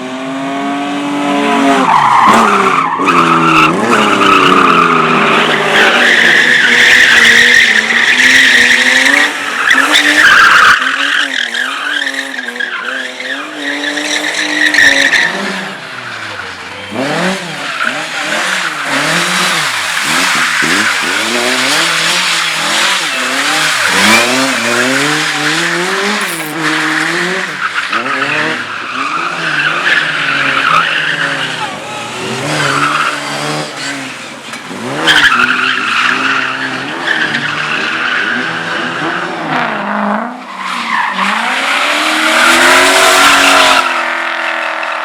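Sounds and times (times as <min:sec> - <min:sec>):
race car engine revving: 0:00.0 - 0:45.0
tyres squealing: 0:01.7 - 0:39.1.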